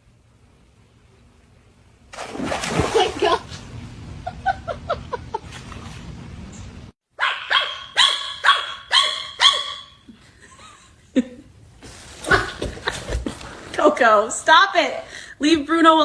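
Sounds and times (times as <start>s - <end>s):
small dog barking: 7.2s - 10.0s.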